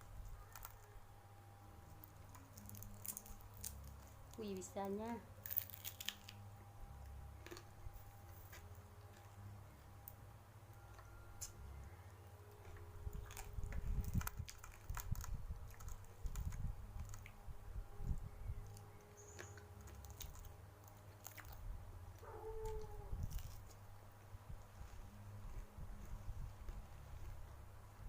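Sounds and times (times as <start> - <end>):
wet crunches of food: 0.4 - 1.0, 1.9 - 4.4, 5.4 - 9.4, 12.6 - 17.4, 18.1 - 23.9
chewing and biting: 7.4 - 9.4, 12.6 - 17.4, 18.6 - 23.8.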